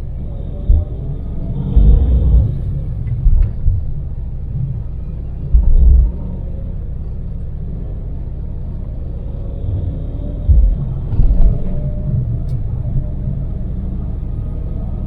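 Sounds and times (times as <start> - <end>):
van engine and road rumble: 0.0 - 15.0
deep thumps: 0.6 - 4.7, 5.5 - 6.2, 10.4 - 11.8.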